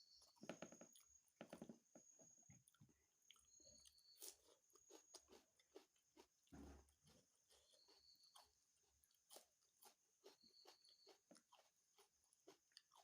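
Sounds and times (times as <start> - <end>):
mouth chewing wet clicks: 0.1 - 13.0.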